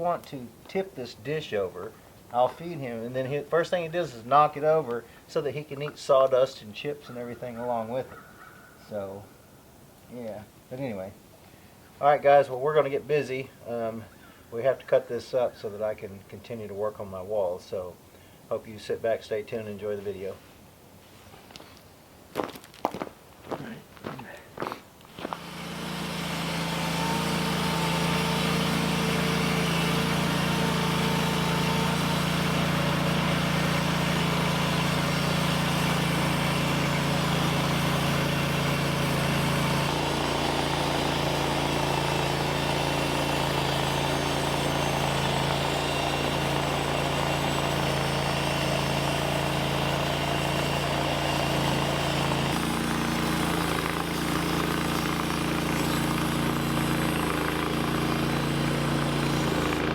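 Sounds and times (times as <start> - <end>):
sawmill engine running: 25.1 - 59.9.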